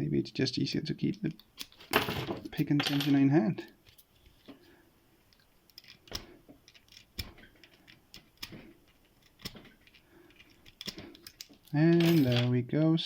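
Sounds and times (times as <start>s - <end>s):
lock pick metal clicks: 5.3s - 12.3s.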